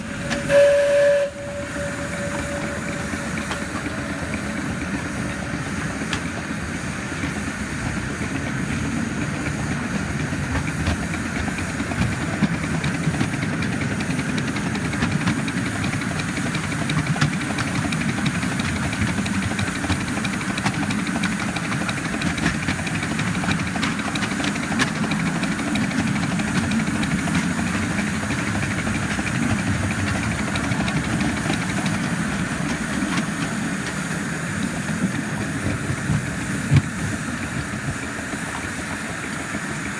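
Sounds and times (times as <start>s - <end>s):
locomotive wheels rumbling: 0.0s - 39.9s
steam hissing: 0.0s - 39.9s
clicks from the track: 10.2s - 34.0s.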